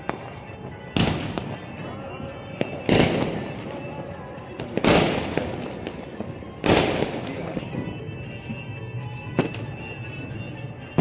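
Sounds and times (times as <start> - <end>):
firecracker bangs: 1.0 - 4.0, 4.6 - 8.6.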